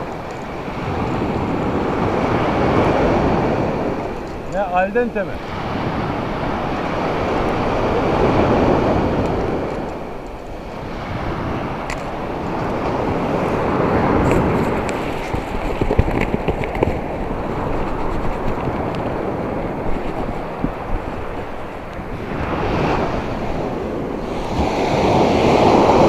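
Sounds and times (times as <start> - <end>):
sea surf washing onto beach: 0.0 - 26.0.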